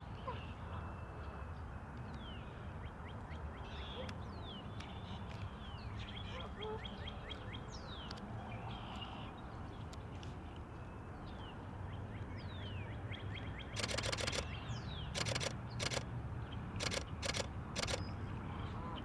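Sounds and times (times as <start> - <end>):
camera shutter rapid clicks: 13.8 - 14.6, 15.2 - 16.1, 16.8 - 18.0
small birds chirping: 13.8 - 16.0, 16.8 - 18.0.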